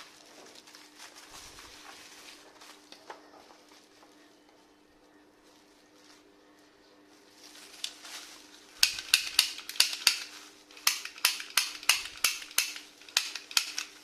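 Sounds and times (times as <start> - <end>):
toy gun mechanism clicking: 8.8 - 14.0.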